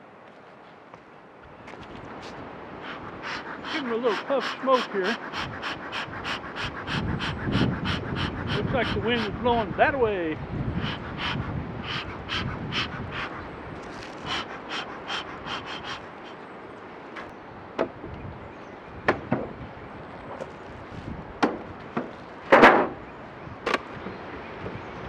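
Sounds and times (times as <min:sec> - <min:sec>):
bee smoker bellows puffing: 0:02.2 - 0:10.0, 0:10.8 - 0:16.4.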